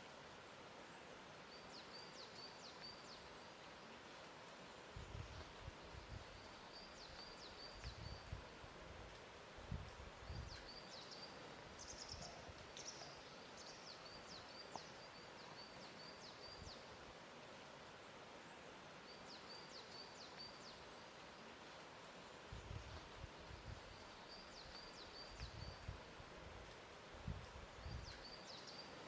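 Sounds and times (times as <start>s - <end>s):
soft steady hiss: 0.0s - 29.0s.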